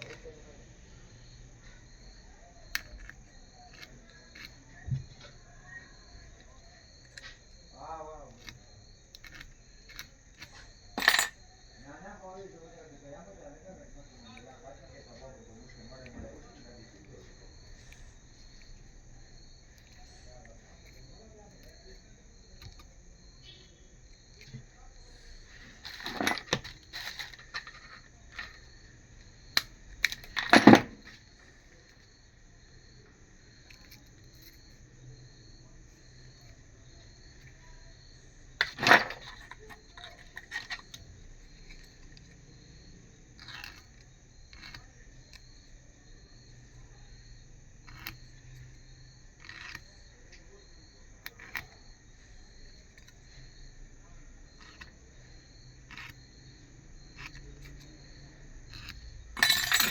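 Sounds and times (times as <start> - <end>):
cricket-like chirping: 0.0 - 59.9
small hard objects clicking: 2.6 - 11.5.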